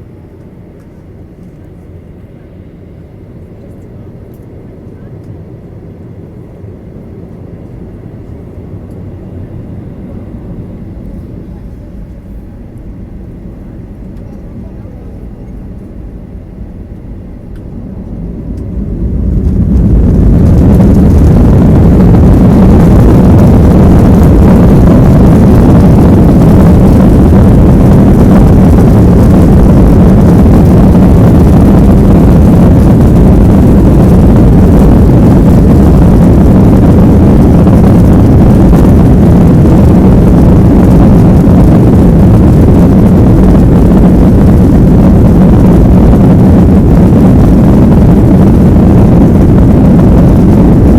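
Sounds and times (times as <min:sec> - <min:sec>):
jet engines spooling up: 0:08.8 - 0:50.9.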